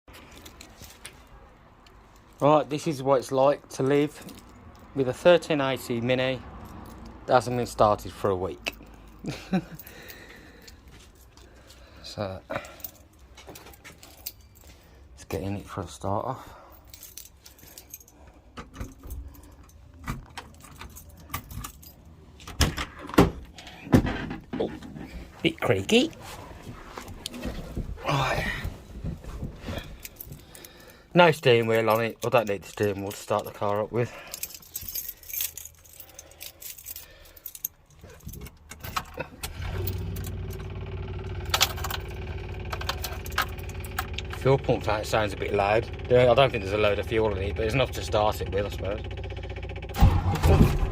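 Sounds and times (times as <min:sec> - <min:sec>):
keys jangling: 0:03.9 - 0:05.1, 0:12.5 - 0:15.0, 0:16.7 - 0:22.5, 0:29.7 - 0:40.7, 0:41.4 - 0:44.3
fuel pump ticking hum: 0:40.3 - 0:50.4.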